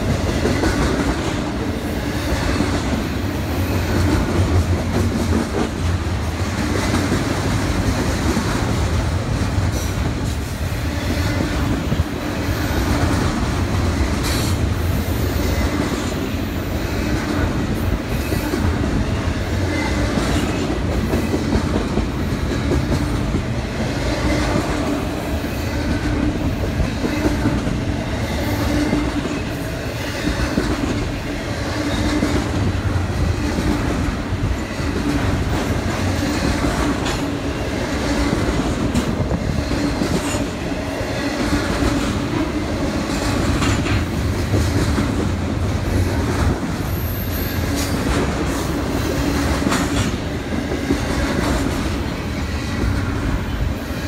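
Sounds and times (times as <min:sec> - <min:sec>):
train cars rumbling past: 0:00.0 - 0:54.0
train wheel clicks: 0:41.4 - 0:46.9, 0:47.6 - 0:52.0.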